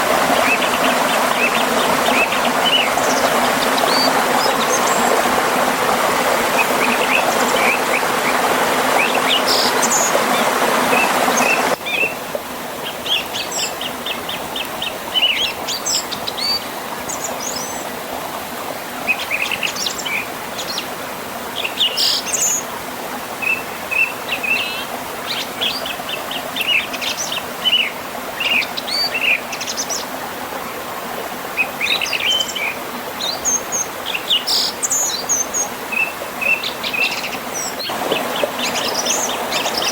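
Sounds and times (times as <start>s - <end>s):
stream rushing: 0.0s - 39.9s
songbirds chirping: 31.5s - 39.9s.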